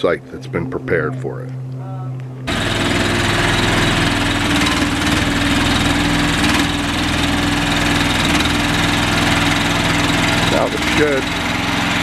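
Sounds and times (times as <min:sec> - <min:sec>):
remote-controlled buggy engine running: 0:02.5 - 0:12.0.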